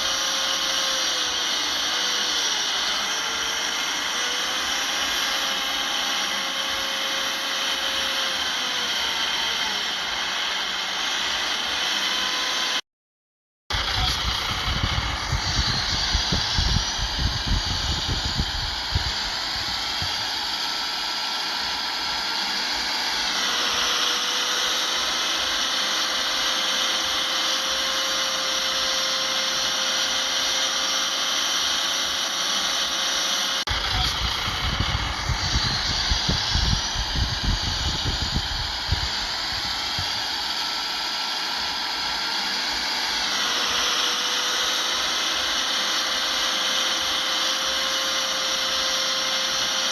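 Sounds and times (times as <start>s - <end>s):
bulldozer diesel engine whining: 33.6s - 45.4s.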